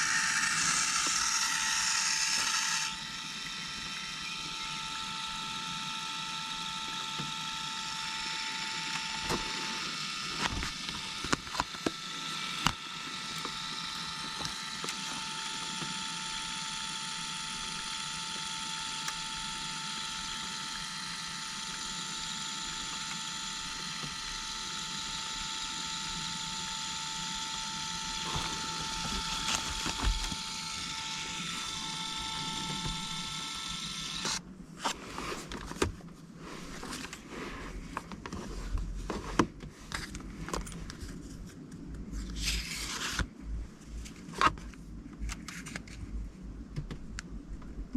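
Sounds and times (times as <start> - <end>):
small geared motor whining: 0.0 - 35.8
clicks and handling rustling: 34.8 - 47.7.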